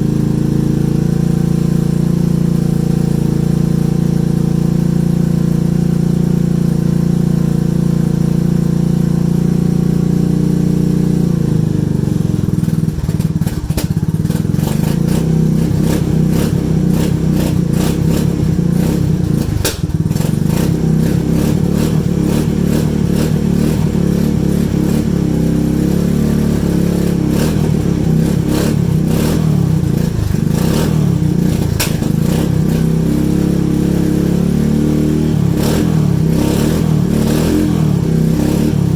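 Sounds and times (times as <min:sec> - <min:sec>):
atv engine idling: 0:00.0 - 0:38.9.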